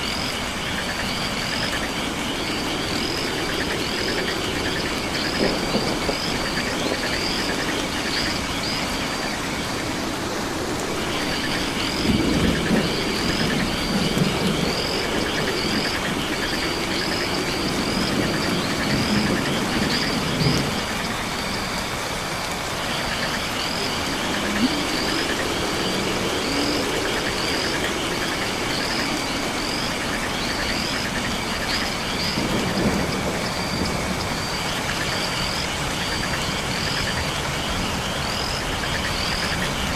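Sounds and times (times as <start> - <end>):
insect trilling: 0.0 - 39.9
rain hiss: 0.0 - 39.9
low frog calls: 22.8 - 37.4.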